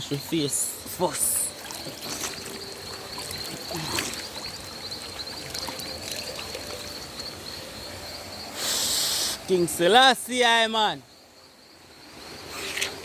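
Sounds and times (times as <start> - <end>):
river water running: 0.0 - 13.0
water splashing: 0.3 - 7.3.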